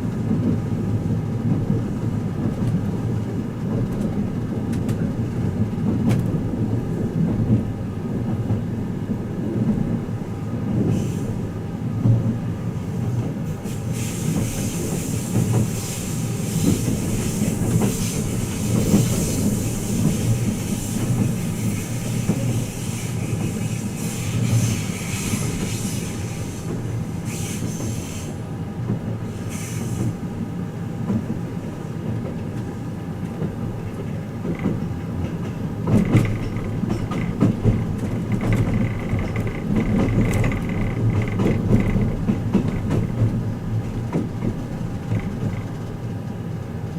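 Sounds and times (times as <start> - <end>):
train wheels rumbling on rail: 0.0 - 46.9
hiss: 10.8 - 11.4, 13.6 - 28.5, 29.3 - 30.3.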